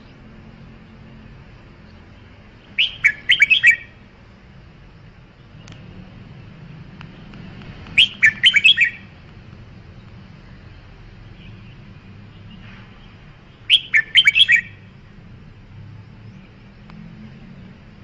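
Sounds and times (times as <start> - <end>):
bird singing whistled notes: 2.2 - 4.0, 7.9 - 9.1, 13.7 - 14.9.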